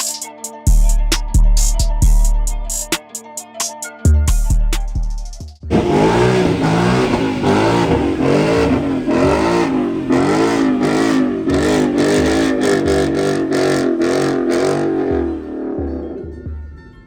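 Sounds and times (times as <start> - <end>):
car engine revving: 5.7 - 16.8.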